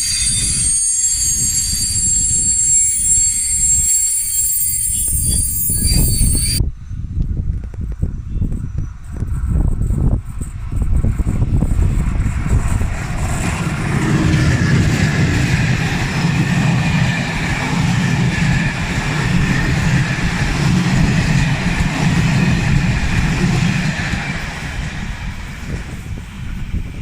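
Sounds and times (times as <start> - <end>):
faint running gear whine: 0.0 - 27.0
train wheels rumbling on rails: 7.3 - 27.0.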